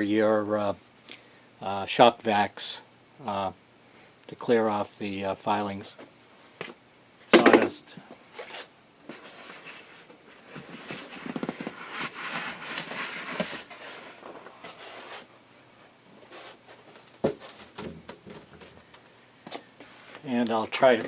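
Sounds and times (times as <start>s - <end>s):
packaging rustling: 10.6s - 15.3s.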